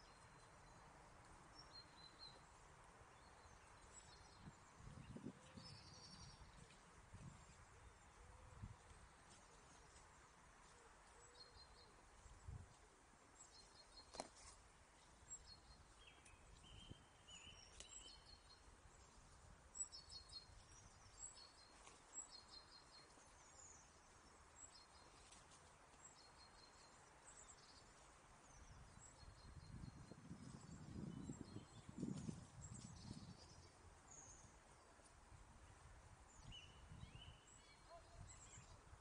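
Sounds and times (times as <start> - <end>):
songbirds chirping: 0.0 - 39.0.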